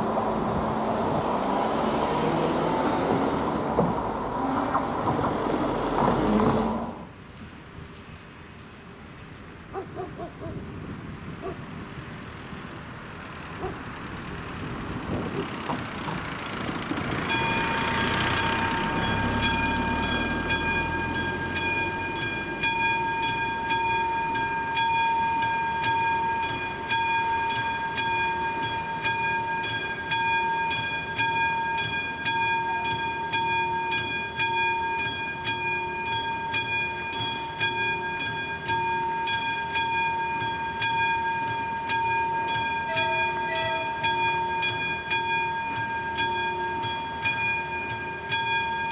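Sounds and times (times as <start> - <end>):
train rumbling past: 0.0 - 8.0, 9.7 - 48.9
level crossing bell ringing: 17.3 - 48.9.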